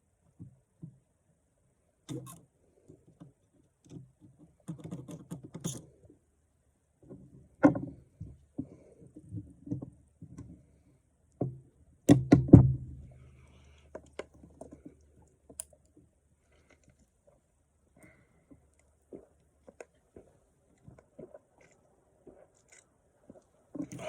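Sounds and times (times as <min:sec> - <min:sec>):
person breathing: 0:13.1 - 0:14.0, 0:18.0 - 0:18.7.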